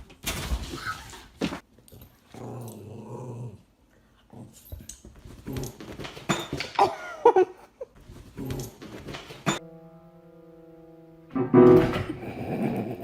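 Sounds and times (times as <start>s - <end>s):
pet animal growling: 2.3s - 3.7s.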